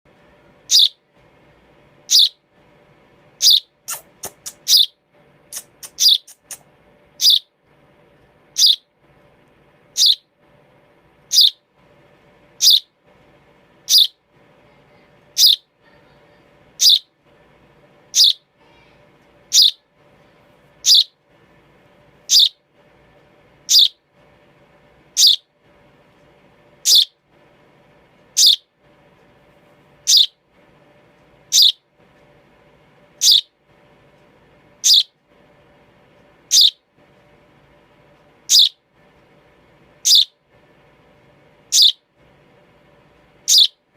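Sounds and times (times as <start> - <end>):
faint background hum: 0.1 - 43.9
baby sparrow chirping: 0.6 - 1.0, 2.0 - 2.4, 3.4 - 7.5, 8.5 - 8.9, 9.9 - 10.3, 11.2 - 11.6, 12.5 - 12.9, 13.8 - 14.2, 14.9 - 17.1, 18.1 - 19.9, 20.8 - 21.2, 22.2 - 22.6, 23.6 - 24.0, 25.1 - 25.5, 26.8 - 27.2, 28.3 - 28.7, 30.0 - 30.4, 31.5 - 31.9, 33.2 - 33.6, 34.8 - 35.2, 36.5 - 36.8, 38.4 - 38.8, 40.0 - 40.4, 41.7 - 42.0, 43.4 - 43.8.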